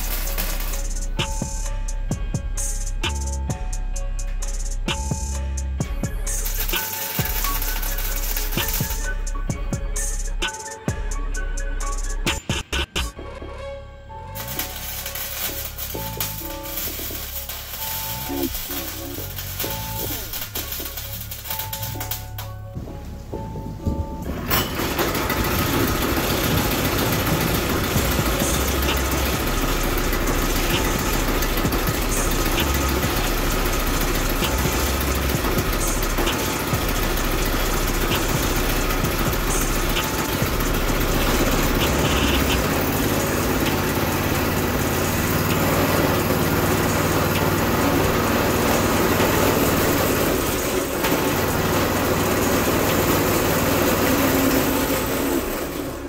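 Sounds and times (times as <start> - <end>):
engine idling: 0.0 - 13.0, 14.4 - 22.6, 23.3 - 56.0.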